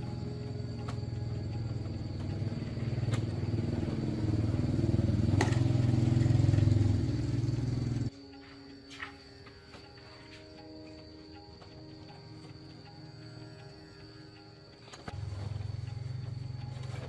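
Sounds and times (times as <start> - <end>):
motorcycle engine running: 0.0 - 8.1, 15.1 - 17.0.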